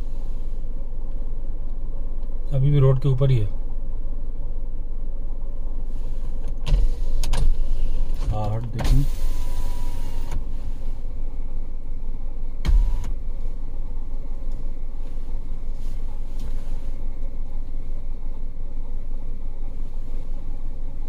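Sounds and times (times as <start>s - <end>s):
car engine idling: 0.0s - 21.0s
short thump: 12.6s - 13.2s.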